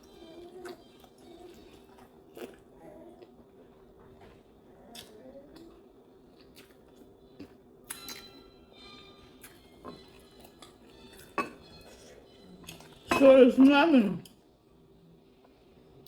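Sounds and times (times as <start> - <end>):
person chewing food: 0.0 - 8.4, 9.4 - 13.0.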